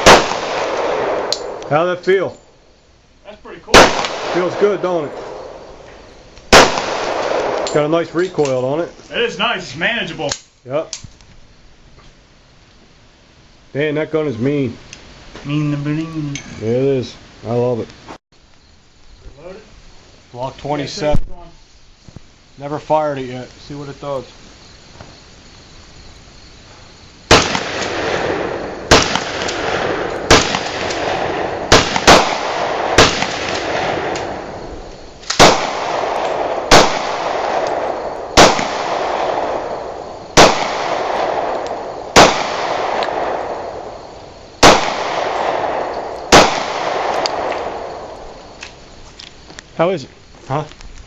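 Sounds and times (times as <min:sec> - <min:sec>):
pistol shots with echo: 0:00.0 - 0:01.7, 0:03.7 - 0:05.6, 0:06.5 - 0:07.9, 0:27.3 - 0:34.6, 0:35.2 - 0:43.9, 0:44.6 - 0:48.2.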